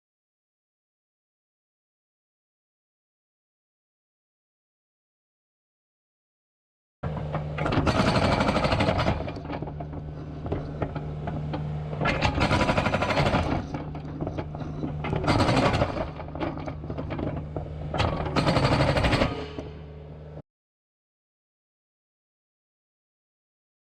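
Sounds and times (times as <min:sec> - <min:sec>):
hydraulic breaker hammering concrete: 0:07.0 - 0:20.3
diesel engine running: 0:07.1 - 0:20.4.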